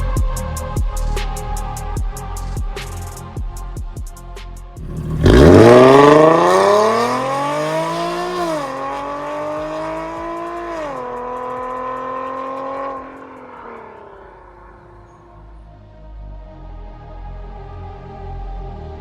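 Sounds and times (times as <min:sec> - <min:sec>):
car exhaust accelerating: 0:04.8 - 0:15.4.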